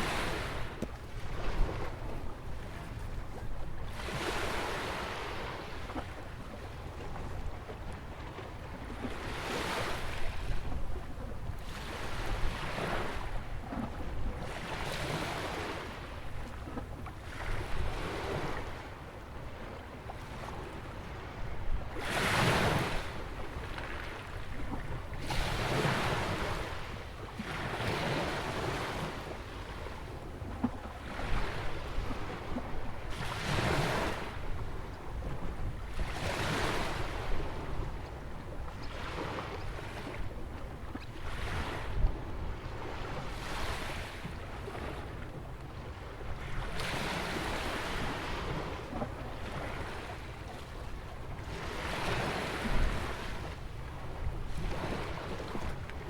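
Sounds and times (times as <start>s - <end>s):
ocean waves breaking: 0.0s - 6.2s, 40.9s - 56.0s
wind rumble on microphone: 0.0s - 56.0s.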